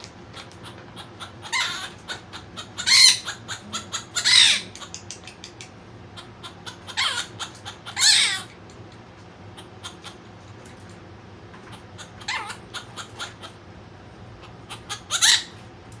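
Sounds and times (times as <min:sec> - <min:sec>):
harsh bird calls: 0:00.4 - 0:08.6, 0:11.7 - 0:13.6, 0:14.4 - 0:15.6
birds chirping: 0:00.4 - 0:08.9, 0:11.7 - 0:13.6, 0:14.4 - 0:15.6.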